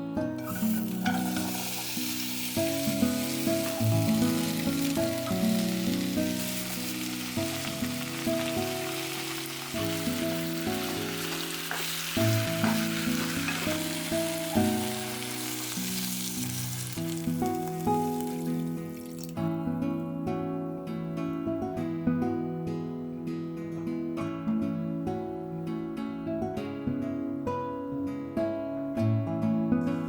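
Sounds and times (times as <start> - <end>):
soft background music: 0.0 - 30.0
food sizzling in a pan: 0.4 - 19.4.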